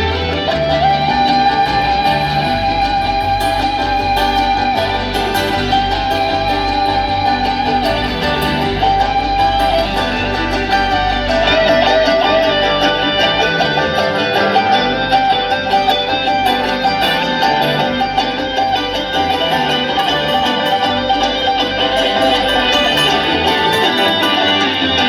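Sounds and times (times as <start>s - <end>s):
acoustic guitar: 0.0s - 25.0s
banjo: 0.0s - 25.0s
fiddle: 0.0s - 25.0s.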